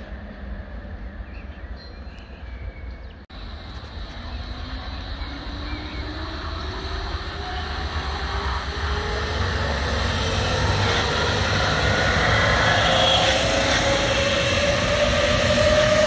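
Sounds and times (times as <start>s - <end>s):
rising train whine: 0.0s - 16.0s
electric train running: 3.4s - 16.0s.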